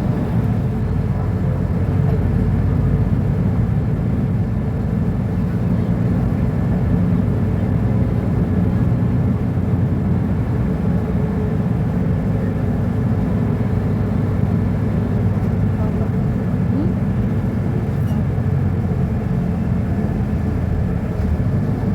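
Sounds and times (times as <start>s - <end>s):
bus diesel engine running: 0.0s - 21.9s.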